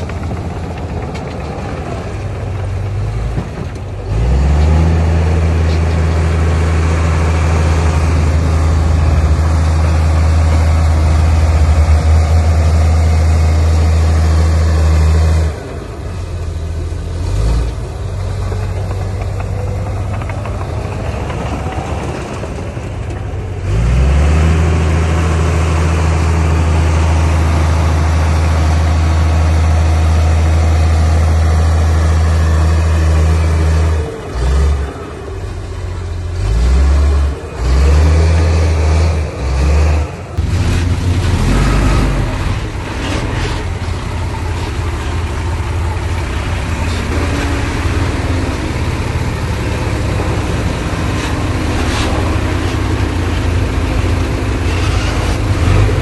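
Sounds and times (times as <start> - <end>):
heavy diesel engine droning: 0.0 - 56.0.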